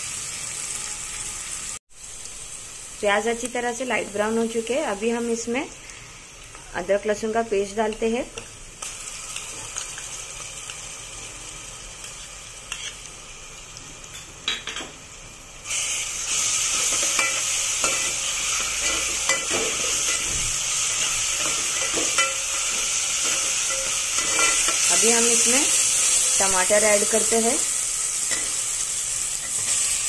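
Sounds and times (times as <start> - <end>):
onions sizzling in hot oil: 0.0 - 30.0
metal spoon scraping a pot: 12.7 - 13.0, 21.0 - 25.0.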